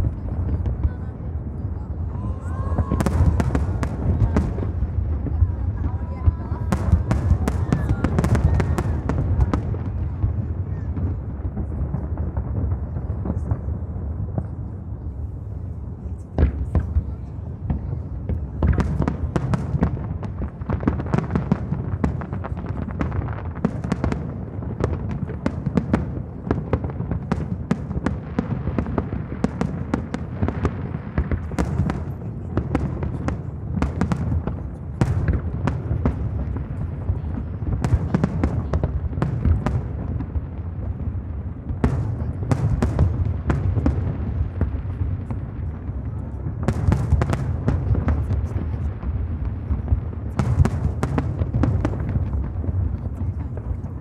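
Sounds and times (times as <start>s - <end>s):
firework cracks and bangs: 0.0s - 15.8s, 16.4s - 54.0s.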